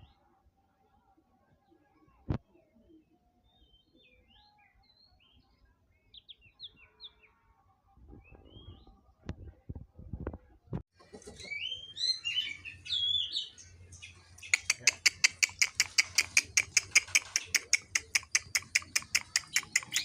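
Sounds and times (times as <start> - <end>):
songbird singing: 2.4 - 7.5, 11.0 - 20.0.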